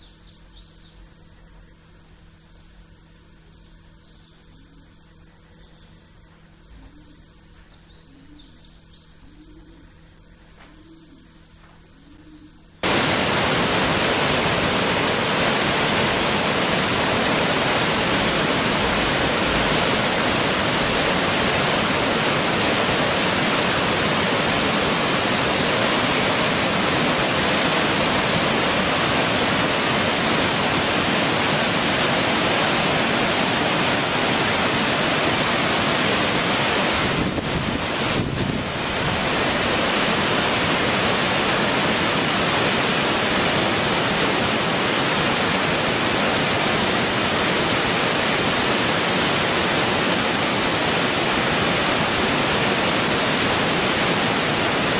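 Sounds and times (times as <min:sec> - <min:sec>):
loud even rushing noise: 0:12.8 - 0:40.6.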